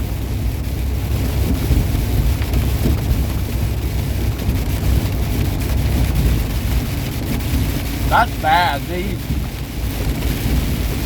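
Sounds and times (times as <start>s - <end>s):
rain hiss: 0.0s - 11.0s
truck engine and road drone: 0.0s - 11.0s.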